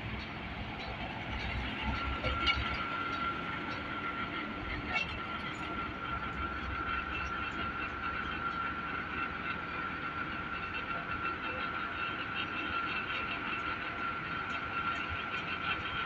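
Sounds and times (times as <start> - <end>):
high engine whine: 0.0 - 16.0.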